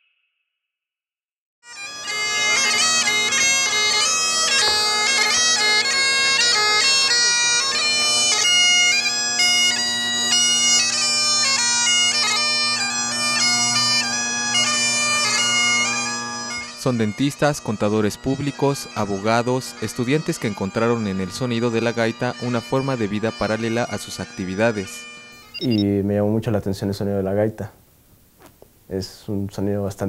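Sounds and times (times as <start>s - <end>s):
bagpipe melody over drones: 1.7s - 25.9s.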